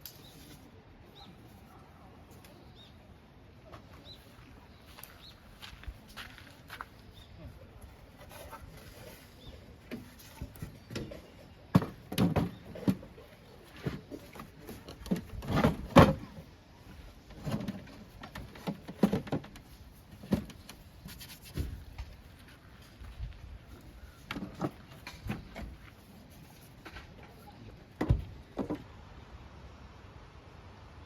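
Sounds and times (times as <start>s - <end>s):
objects knocking and clunking: 9.9s - 16.4s, 17.3s - 20.8s, 24.3s - 25.9s.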